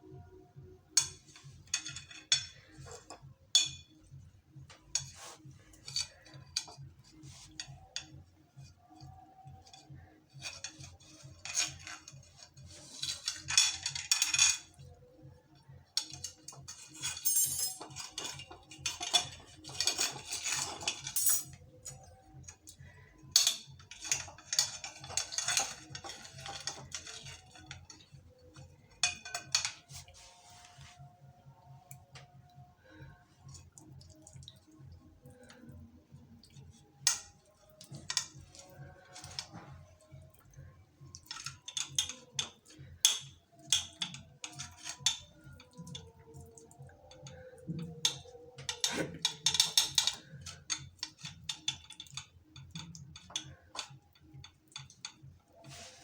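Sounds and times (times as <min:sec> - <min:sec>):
metal utensils and dishes clinking: 0:00.9 - 0:15.2, 0:15.9 - 0:31.0, 0:36.4 - 0:56.0
scraping or rustling: 0:29.7 - 0:31.1, 0:55.6 - 0:56.0.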